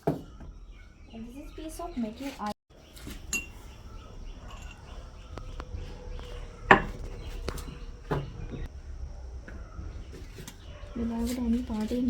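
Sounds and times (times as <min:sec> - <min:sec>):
sharp knocks of hard objects: 0:05.4 - 0:08.7.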